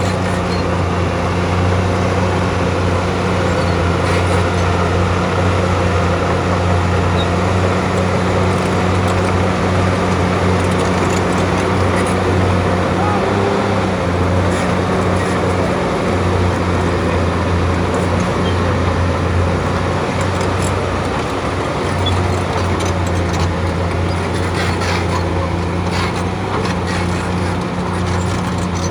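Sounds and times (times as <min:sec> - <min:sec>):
bulldozer diesel engine running: 0:00.0 - 0:28.9.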